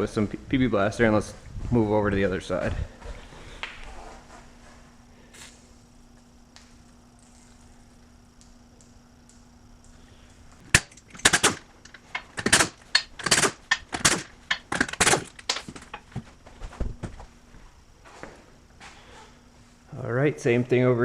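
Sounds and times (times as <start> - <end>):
tools knocking and clattering: 10.7 - 16.3.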